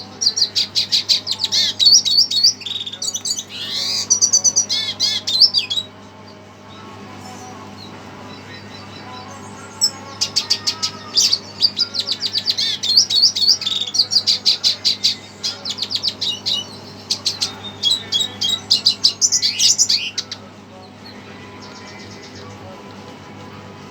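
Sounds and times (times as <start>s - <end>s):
finch twittering: 0.0s - 5.9s, 8.3s - 20.5s.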